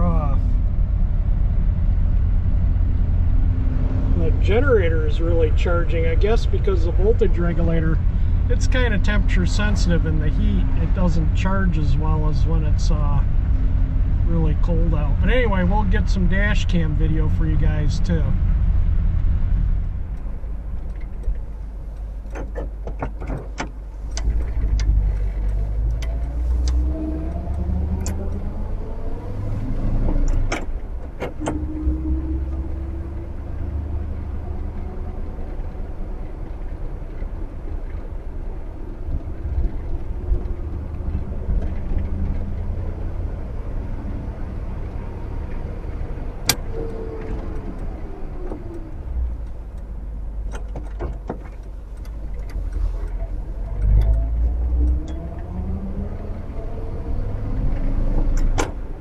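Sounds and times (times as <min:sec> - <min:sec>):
low rumble: 0:00.0 - 0:22.8.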